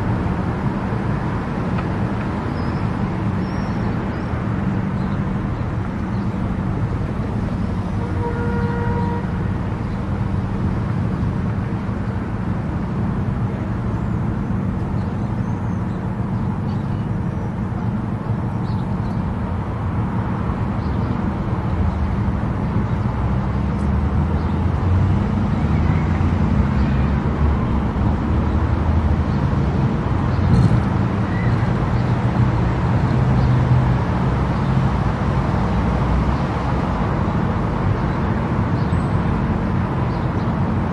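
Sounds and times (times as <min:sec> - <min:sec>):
car road and engine noise: 0:00.0 - 0:40.9.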